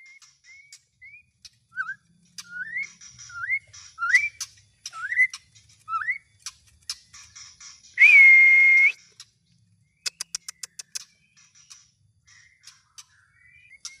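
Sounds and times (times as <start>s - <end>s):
bird whistling and clicking: 0.0s - 9.4s, 10.0s - 14.0s.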